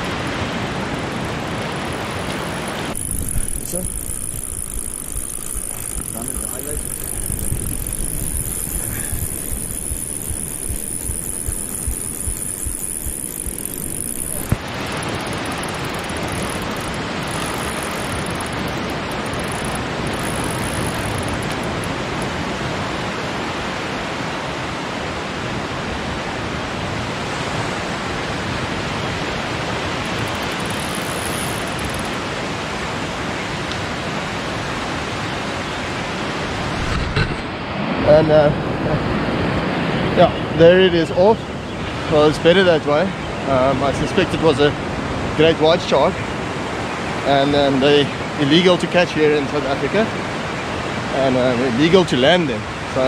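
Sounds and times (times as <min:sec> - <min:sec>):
wind: 0:00.0 - 0:53.0.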